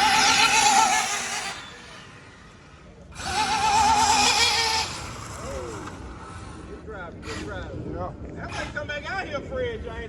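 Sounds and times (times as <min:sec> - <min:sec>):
rc car motor whine: 0:00.0 - 0:06.8.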